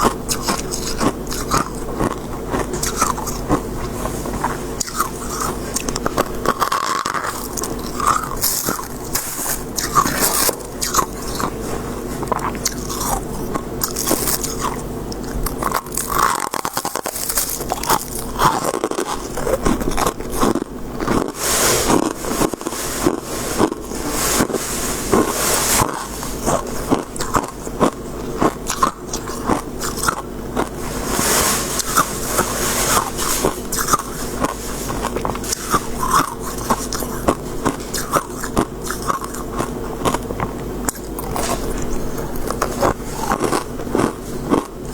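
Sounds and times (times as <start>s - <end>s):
crunching ice chewing: 0.0s - 11.6s, 12.2s - 44.9s
ice scraping and crushing: 4.8s - 11.6s, 13.8s - 14.8s, 15.5s - 27.5s, 28.8s - 37.3s.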